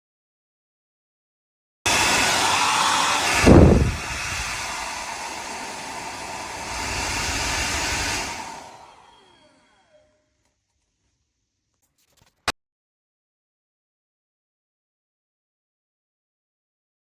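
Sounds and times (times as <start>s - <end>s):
hair dryer running: 1.9s - 10.2s.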